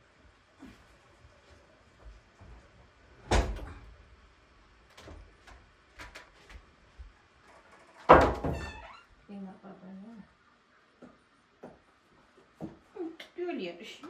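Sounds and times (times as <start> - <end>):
loud knocks: 8.1 - 8.7.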